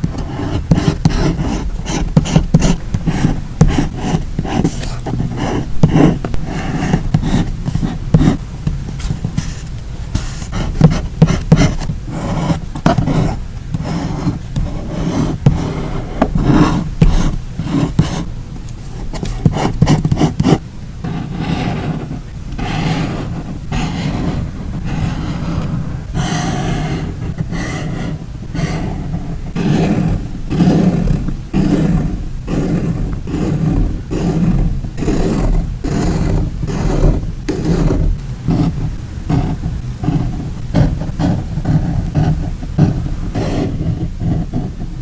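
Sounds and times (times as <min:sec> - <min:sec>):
hands tapping and rubbing paper: 0:00.0 - 0:22.7.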